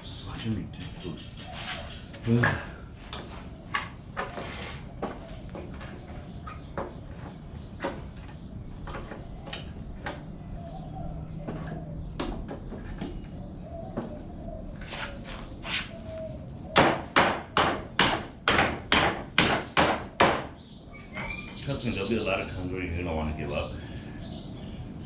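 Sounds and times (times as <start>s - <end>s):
hammer striking wood: 16.8s - 20.6s.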